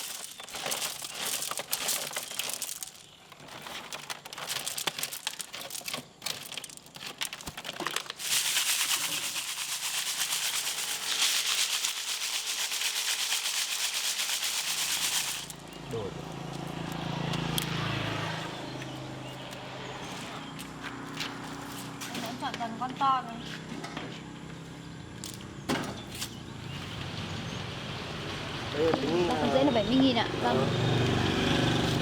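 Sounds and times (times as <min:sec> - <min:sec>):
snail shells clattering: 0:00.0 - 0:17.7.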